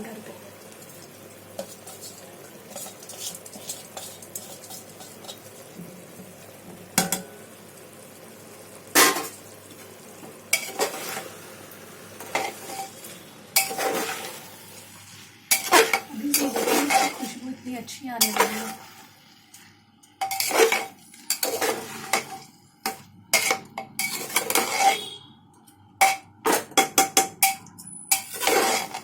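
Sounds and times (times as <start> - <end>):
faint sizzle: 0.0 - 26.5
metal spoon scraping a pot: 1.6 - 5.8, 12.3 - 13.0, 13.6 - 14.4, 15.5 - 17.4, 18.2 - 19.0, 20.2 - 25.3, 27.4 - 29.0
spoon clinking against pot: 20.2 - 25.2, 26.0 - 29.0.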